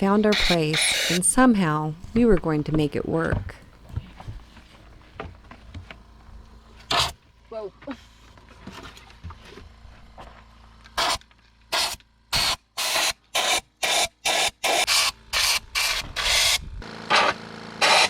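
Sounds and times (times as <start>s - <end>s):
hand tool scraping dirt and rock: 0.0s - 1.6s.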